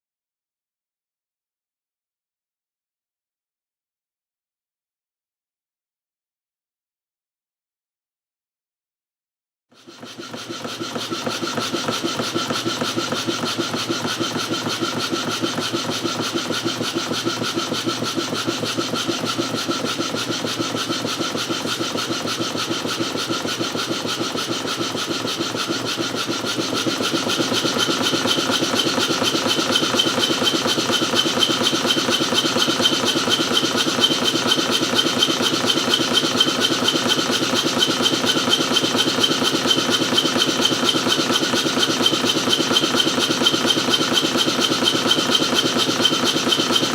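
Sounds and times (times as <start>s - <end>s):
steam engine exhaust beats: 10.4s - 46.9s.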